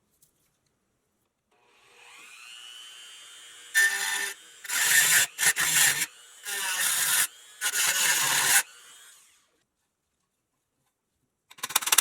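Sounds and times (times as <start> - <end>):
power tool cutting: 1.7 - 9.4
power tool whining: 1.7 - 9.4.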